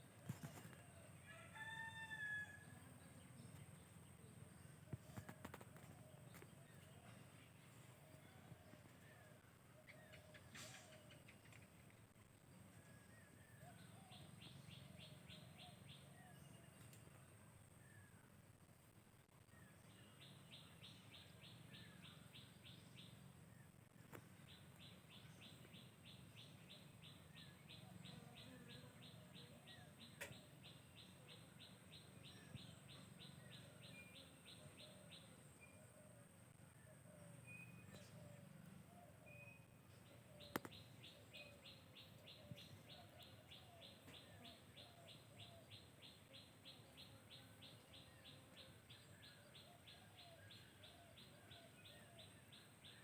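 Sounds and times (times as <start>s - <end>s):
birds chirping: 19.4s - 53.0s
sharp clicks: 40.5s - 40.8s.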